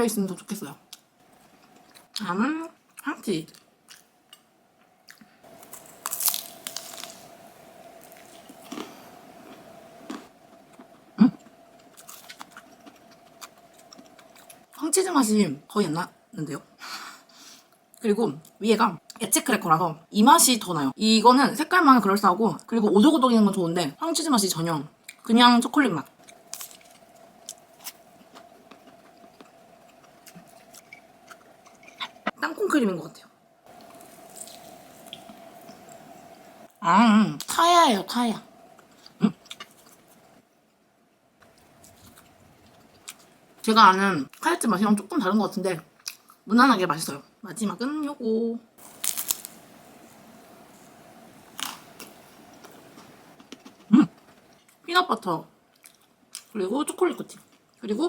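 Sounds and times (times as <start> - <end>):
faint steady hum: 0.0 - 58.0
crunchy chewing: 5.1 - 7.3, 8.0 - 10.9, 26.2 - 32.3, 33.7 - 36.0, 48.8 - 54.8
crunchy bite into doughnut: 48.9 - 49.6.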